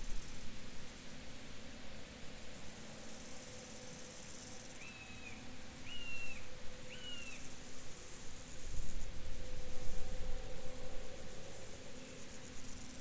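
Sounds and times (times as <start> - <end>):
bird whistled calls: 4.8 - 7.4.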